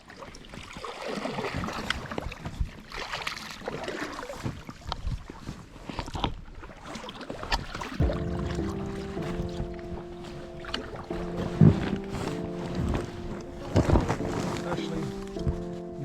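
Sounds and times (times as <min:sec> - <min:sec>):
water splashing: 0:00.0 - 0:05.4, 0:06.0 - 0:15.8
background music: 0:08.0 - 0:16.0
paddles knocking against boat: 0:08.0 - 0:16.0.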